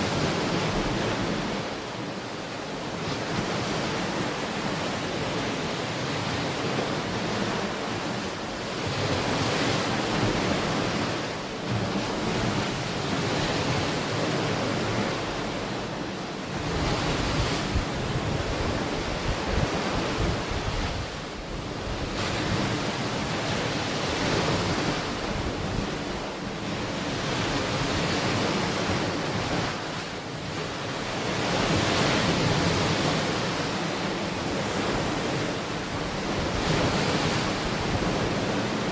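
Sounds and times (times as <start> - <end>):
ocean waves breaking: 0.0 - 38.9
wind on microphone: 16.5 - 38.9.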